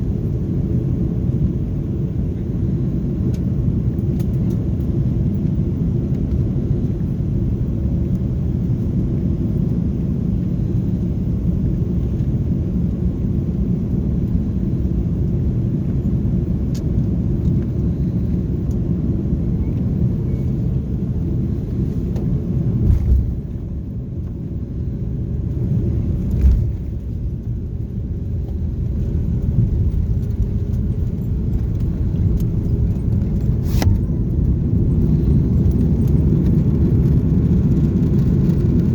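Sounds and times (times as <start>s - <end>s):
aircraft cabin rumble: 0.0s - 38.9s.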